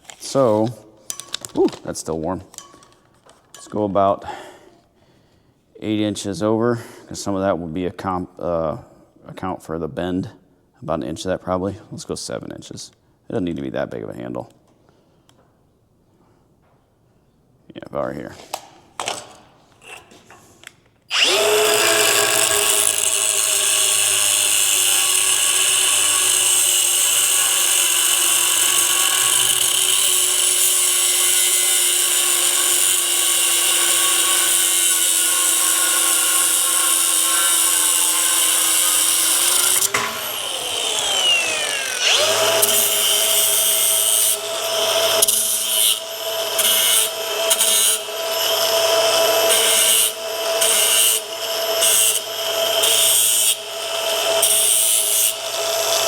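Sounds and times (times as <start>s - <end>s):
angle grinder cutting steel: 21.1s - 56.0s.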